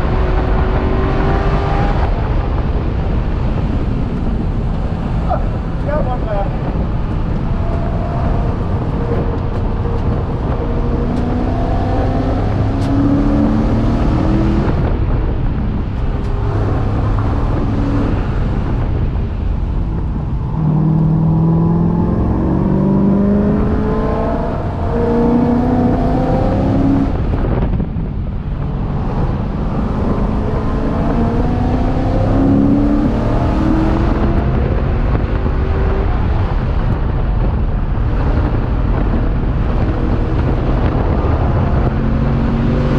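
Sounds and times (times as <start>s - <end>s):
race car engine accelerating: 5.0s - 15.0s, 20.2s - 27.6s, 38.1s - 42.9s.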